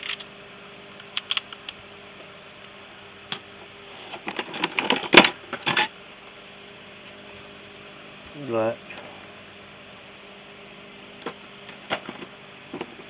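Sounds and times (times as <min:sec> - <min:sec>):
metal tools clinking in a toolbox: 0:00.0 - 0:00.3, 0:04.3 - 0:05.9.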